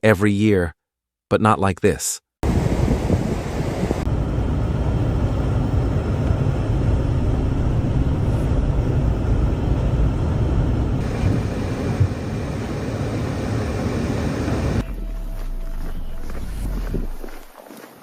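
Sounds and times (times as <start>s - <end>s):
low outdoor rumble: 3.4s - 17.5s.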